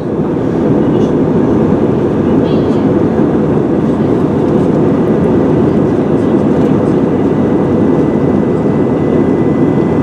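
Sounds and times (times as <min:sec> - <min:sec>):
airliner cabin engine rumble: 0:00.0 - 0:10.0.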